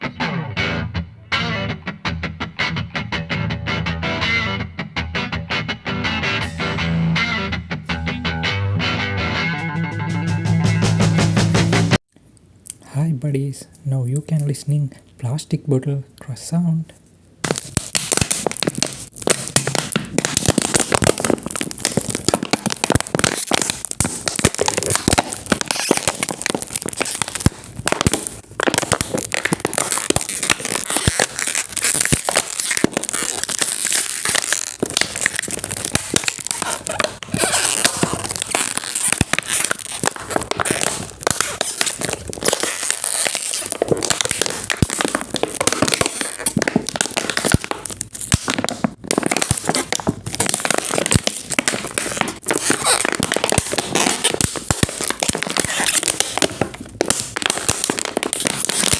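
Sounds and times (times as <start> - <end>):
plastic bottle crinkling: 17.1 - 58.9.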